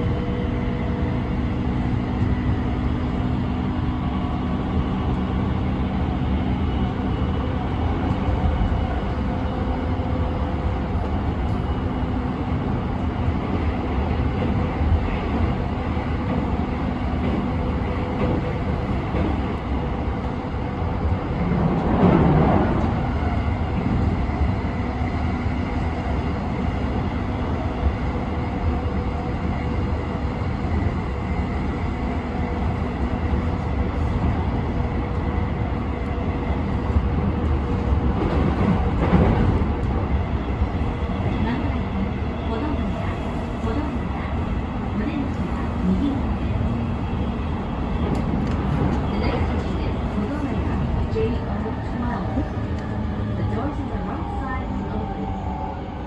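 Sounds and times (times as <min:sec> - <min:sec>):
train wheel and rail rumble: 0:00.0 - 0:56.0.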